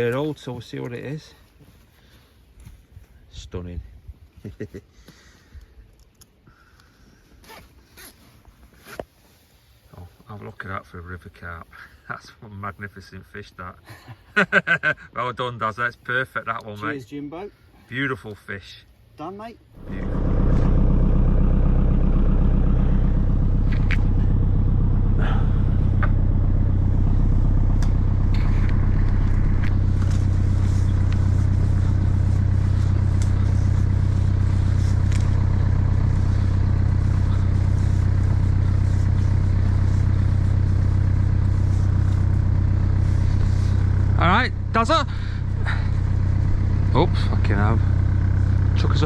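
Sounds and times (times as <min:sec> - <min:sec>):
engine humming steadily: 0:19.8 - 0:49.0.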